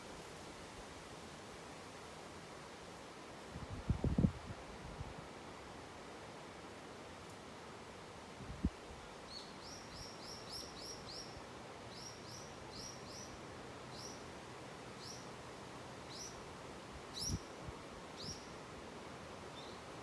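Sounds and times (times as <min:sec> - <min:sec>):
wind hiss: 0:00.0 - 0:20.0
small bird chirping: 0:09.3 - 0:13.3, 0:16.1 - 0:16.4, 0:17.2 - 0:17.5, 0:18.2 - 0:18.5.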